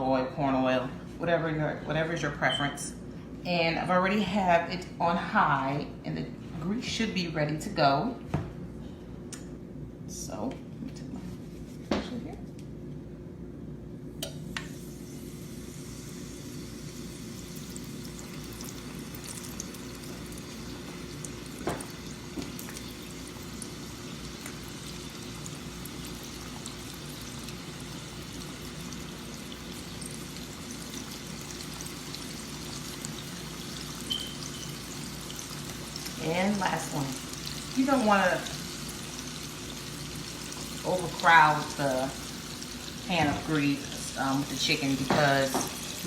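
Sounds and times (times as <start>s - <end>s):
chicken frying in oil: 15.5s - 46.0s.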